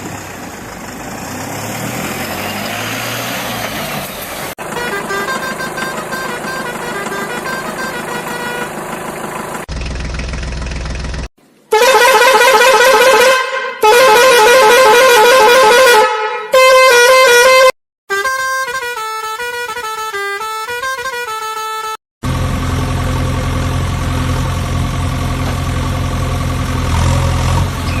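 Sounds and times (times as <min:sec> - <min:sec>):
warbling electronic horn blasts: 0:04.6 - 0:09.1, 0:11.7 - 0:22.0
beeping tune: 0:04.7 - 0:08.8.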